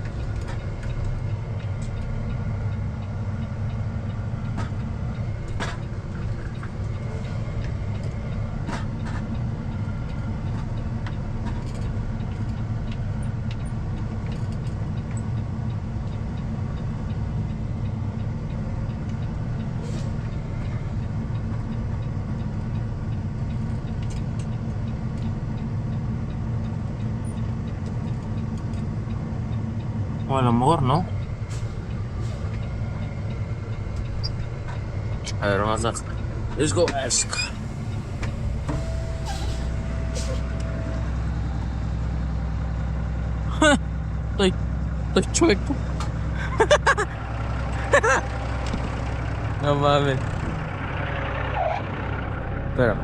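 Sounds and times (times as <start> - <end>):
diesel truck engine droning: 0.0 - 53.0.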